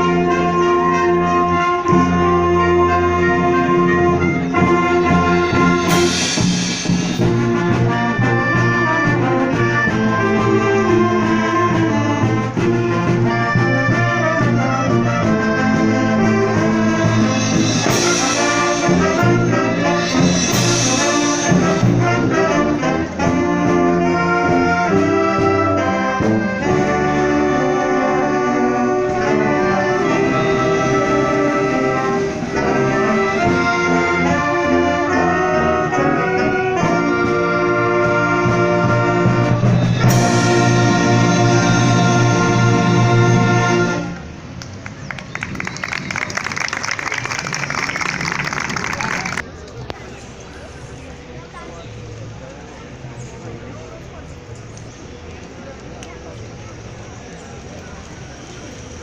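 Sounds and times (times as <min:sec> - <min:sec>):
trombones and trumpets: 0:00.0 - 0:44.6
wind band playing: 0:00.0 - 0:49.6.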